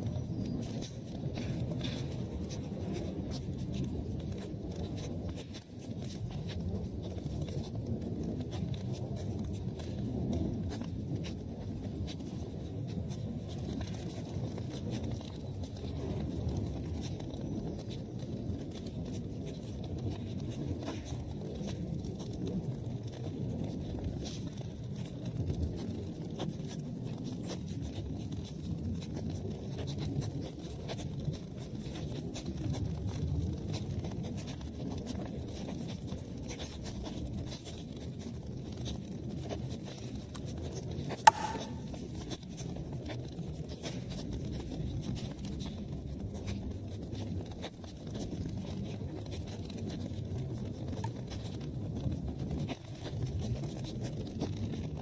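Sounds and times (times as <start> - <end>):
fire crackling in fireplace: 0.0 - 41.9.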